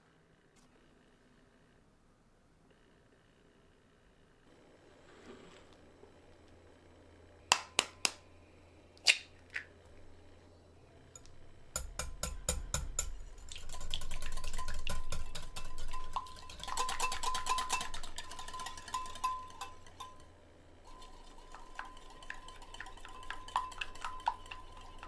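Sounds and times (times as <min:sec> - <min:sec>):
whisk clicking against bowl: 0:11.2 - 0:20.3, 0:20.9 - 0:25.0
taps on a mixing bowl: 0:11.8 - 0:13.2.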